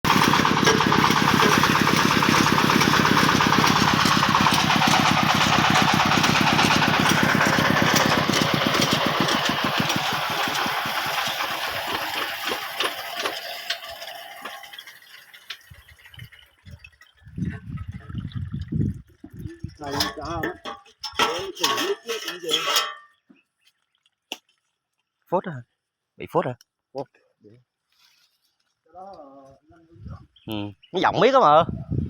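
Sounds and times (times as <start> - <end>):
drilling rig engine running: 0.0 - 16.2.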